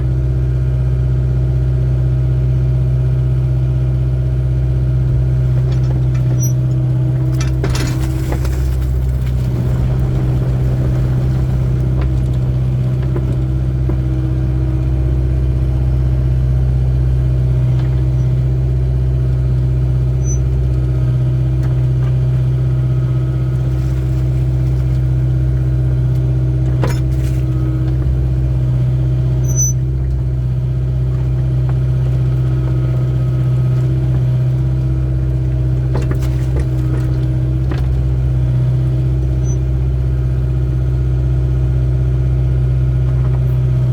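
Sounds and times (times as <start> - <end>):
diesel engine droning: 0.0 - 43.9.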